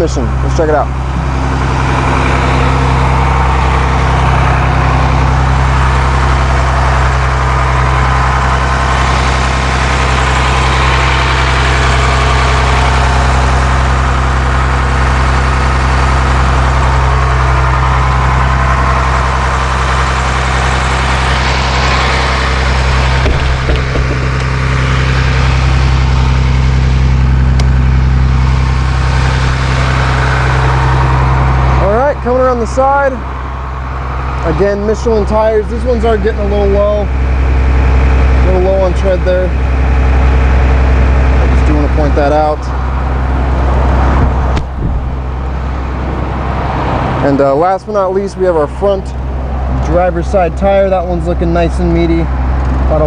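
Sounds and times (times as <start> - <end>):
diesel engine idling: 0.0 - 53.0
brief knocks: 23.2 - 25.0, 44.2 - 45.4.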